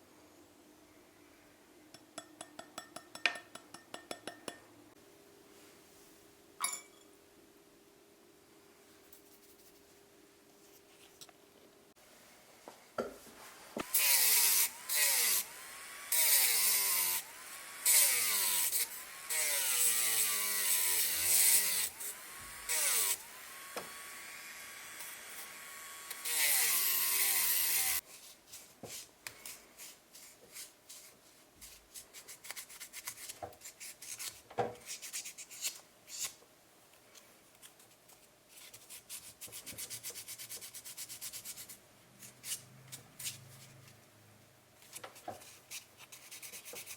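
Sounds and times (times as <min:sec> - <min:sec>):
small power tool motor whining: 0:13.9 - 0:28.0.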